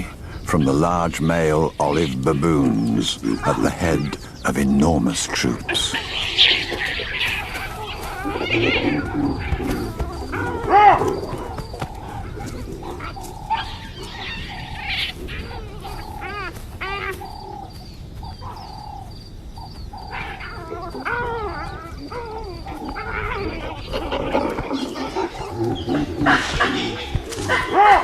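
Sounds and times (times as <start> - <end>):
animals calling: 0.0 - 28.0.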